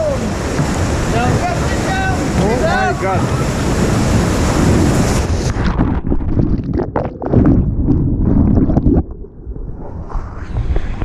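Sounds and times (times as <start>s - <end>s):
whitewater rushing: 0.0s - 5.6s
knocks and splashes: 0.0s - 9.1s
wind buffeting microphone: 0.0s - 11.0s.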